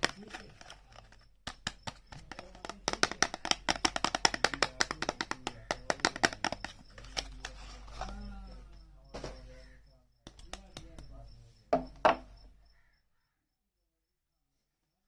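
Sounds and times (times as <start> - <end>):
rapid tapping on packaging: 0.0 - 8.5, 10.3 - 11.2.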